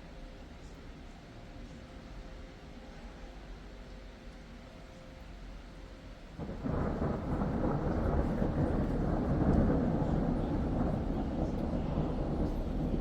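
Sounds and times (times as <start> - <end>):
thunder rumbling: 6.4 - 13.0.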